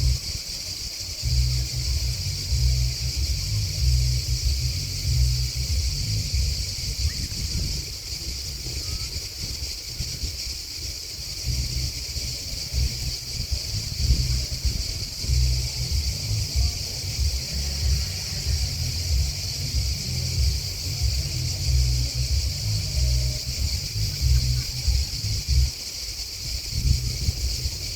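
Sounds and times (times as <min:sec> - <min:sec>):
low rumble: 0:00.0 - 0:00.4, 0:01.2 - 0:10.4, 0:11.3 - 0:25.8, 0:26.6 - 0:27.9
crickets and grasshoppers chirping: 0:00.0 - 0:27.9.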